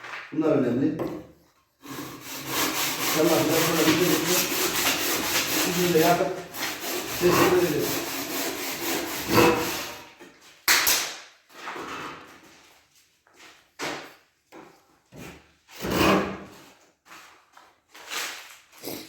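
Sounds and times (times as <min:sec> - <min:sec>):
rasping scraping strokes: 0:01.8 - 0:10.1, 0:15.8 - 0:16.6.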